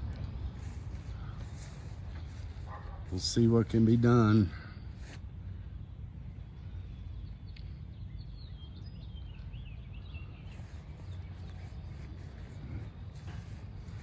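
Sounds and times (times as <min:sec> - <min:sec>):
steady low rumble: 0:00.0 - 0:14.0
bird chirping: 0:05.8 - 0:14.0.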